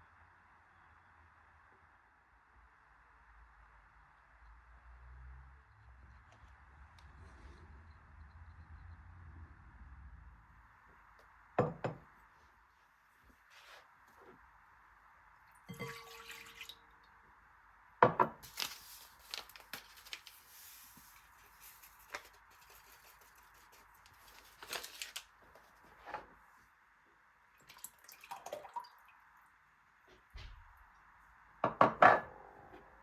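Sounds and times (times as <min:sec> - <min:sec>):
kitchen knocks and clatters: 0:18.0 - 0:18.5, 0:31.6 - 0:32.3
hissing water or rustling: 0:18.4 - 0:25.2.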